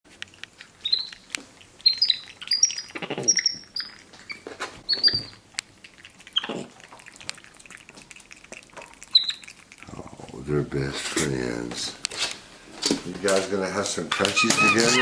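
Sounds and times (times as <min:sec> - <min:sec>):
monkeys chirping and squeaking: 0:00.8 - 0:05.5, 0:06.4 - 0:06.7, 0:09.1 - 0:09.6, 0:14.2 - 0:15.0
rustling: 0:09.5 - 0:15.0.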